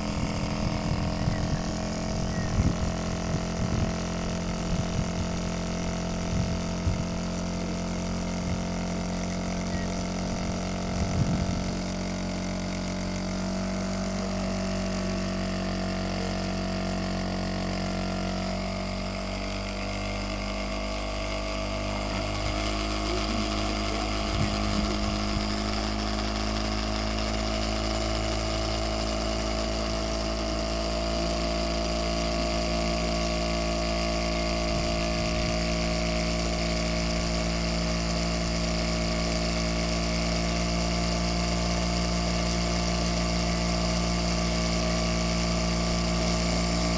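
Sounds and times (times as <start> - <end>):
small engine humming: 0.0 - 46.9.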